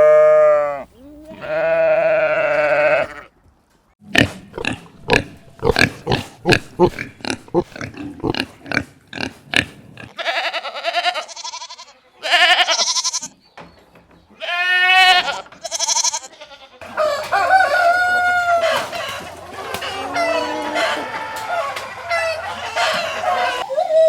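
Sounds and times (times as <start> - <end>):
goat bleating: 0.0 - 3.3, 10.1 - 13.3, 14.4 - 16.8
pig grunting: 4.0 - 10.2
rooster crowing: 16.8 - 23.6.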